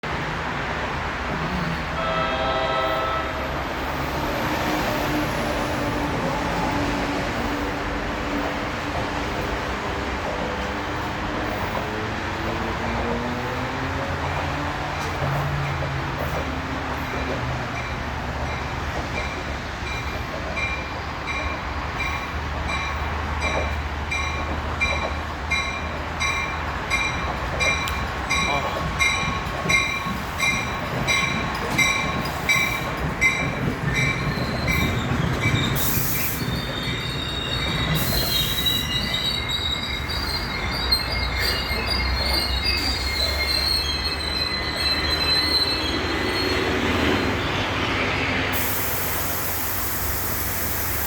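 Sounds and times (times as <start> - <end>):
train rumbling: 0.0 - 51.0
train horn: 1.9 - 3.8.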